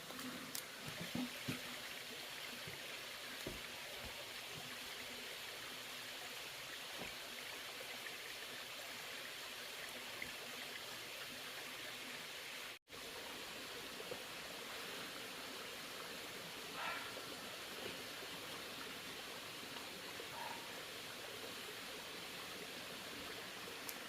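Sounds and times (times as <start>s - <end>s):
running water rushing: 0.0s - 24.0s.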